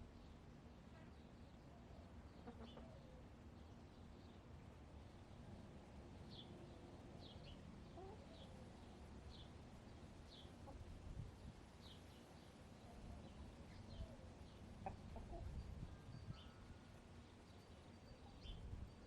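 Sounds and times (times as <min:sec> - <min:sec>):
bird chirping: 0:11.8 - 0:19.0.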